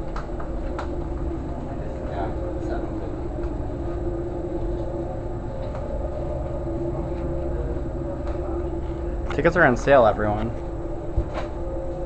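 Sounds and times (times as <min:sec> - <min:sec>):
ship machinery drone: 0:00.0 - 0:12.0.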